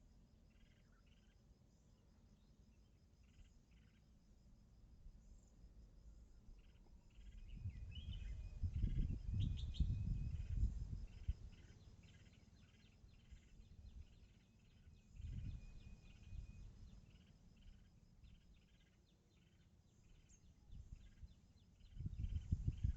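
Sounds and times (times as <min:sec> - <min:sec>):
birds chirping and calling: 0:07.2 - 0:22.9.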